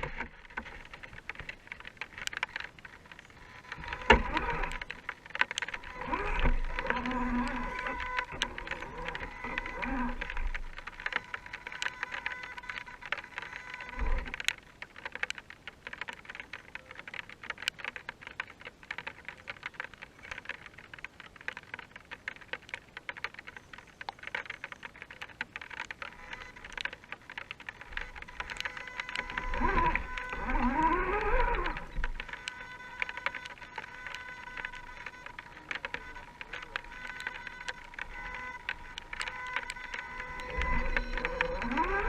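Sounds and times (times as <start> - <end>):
electric motor and gears whining: 0.0 - 15.3, 25.6 - 42.0
rain pattering: 0.0 - 42.0.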